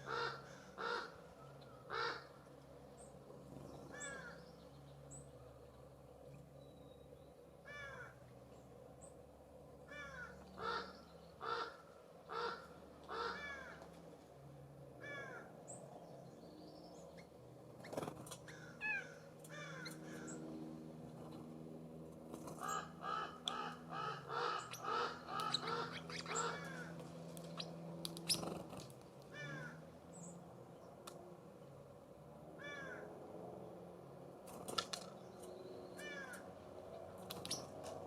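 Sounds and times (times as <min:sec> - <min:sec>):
jay harsh rasping calls: 0:00.0 - 0:01.2, 0:01.9 - 0:02.3, 0:09.9 - 0:13.7, 0:22.6 - 0:26.9
small birds chipping: 0:15.1 - 0:31.8, 0:34.4 - 0:38.0.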